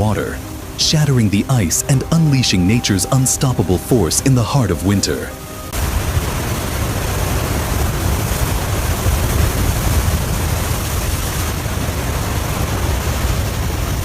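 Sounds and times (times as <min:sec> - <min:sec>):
floodwater rushing through broken ice: 0:05.8 - 0:14.0.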